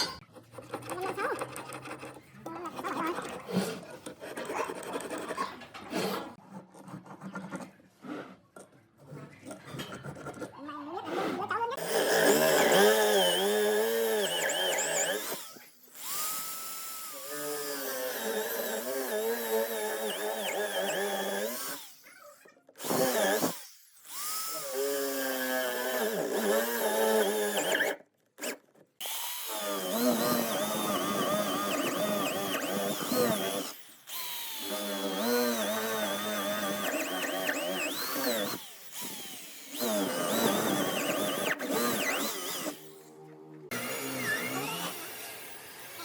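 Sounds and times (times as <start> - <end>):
electric power tool running: 11.8 - 22.1, 22.8 - 28.0, 29.0 - 43.1, 43.7 - 46.0.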